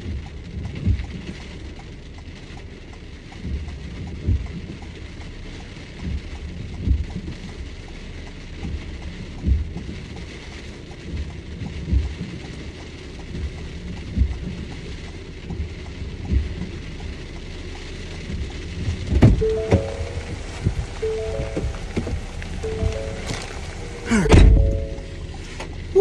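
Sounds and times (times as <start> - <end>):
rain falling on car: 0.0 - 26.0
dull low thump: 18.9 - 23.5, 24.1 - 25.8.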